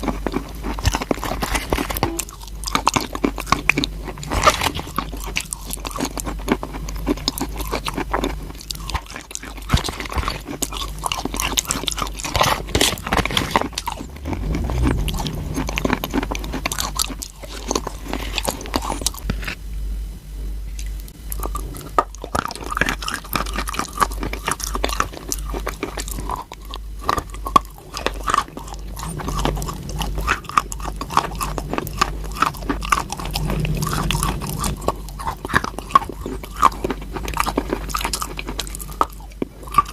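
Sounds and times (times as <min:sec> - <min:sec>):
person chewing crunchy chalk: 0:00.0 - 0:19.6, 0:20.8 - 0:39.9.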